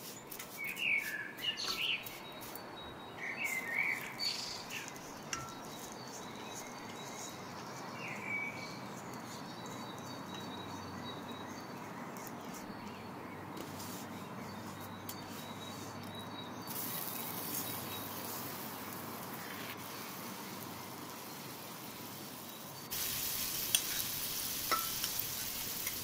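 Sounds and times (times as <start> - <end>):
birds chirping: 0.0 - 26.0
steady hiss: 16.7 - 26.0.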